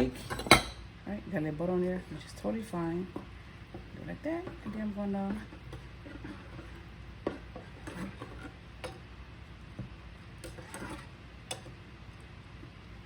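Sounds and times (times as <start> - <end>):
kitchen things clicking and tapping: 0.0 - 0.8, 2.9 - 9.1, 9.7 - 11.8
faint steady hum: 0.0 - 13.0.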